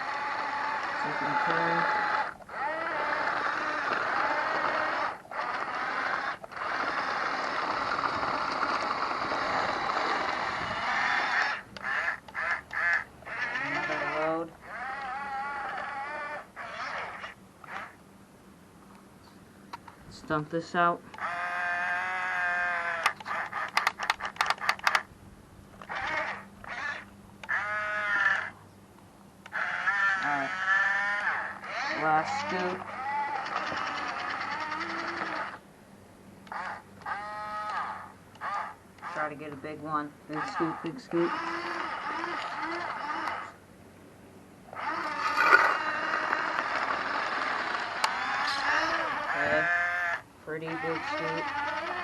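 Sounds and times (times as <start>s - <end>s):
sharp clicks and rattles: 0.0s - 18.0s, 22.8s - 25.1s, 31.2s - 35.6s, 40.3s - 43.6s, 44.7s - 49.6s, 50.6s - 52.0s
toy bulldozer motors whining: 0.0s - 18.0s, 20.6s - 25.1s, 25.8s - 28.6s, 29.4s - 35.6s, 36.4s - 43.6s, 44.7s - 52.0s.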